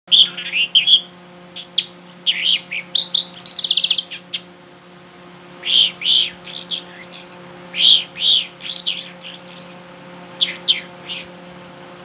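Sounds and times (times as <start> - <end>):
songbird singing: 0.1 - 4.6, 5.6 - 11.4
faint low hum: 0.1 - 12.0.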